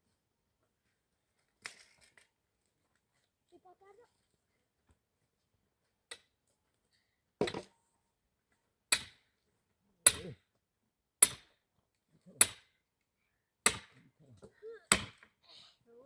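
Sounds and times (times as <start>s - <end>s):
axe chopping firewood: 7.4s - 7.7s, 8.9s - 9.2s, 10.1s - 10.4s, 11.2s - 11.6s, 12.4s - 12.7s, 13.6s - 14.0s, 14.9s - 15.3s.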